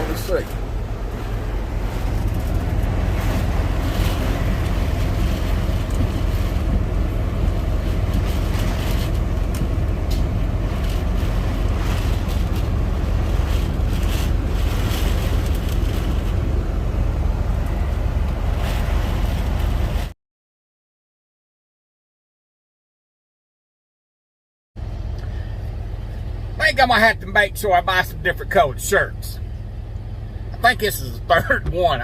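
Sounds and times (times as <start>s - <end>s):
deep low rumble: 0.0s - 20.1s
heavy rain spattering: 1.1s - 16.6s.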